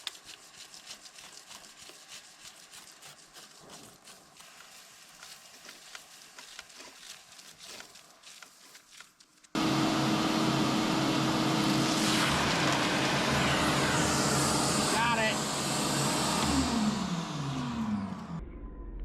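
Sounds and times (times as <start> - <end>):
loud motor drone: 9.6 - 18.5.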